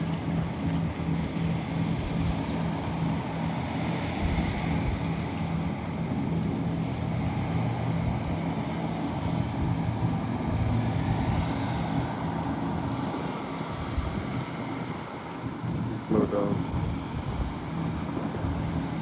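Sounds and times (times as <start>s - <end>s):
boat engines droning: 0.0s - 19.0s
rush of wind and water: 0.0s - 19.0s.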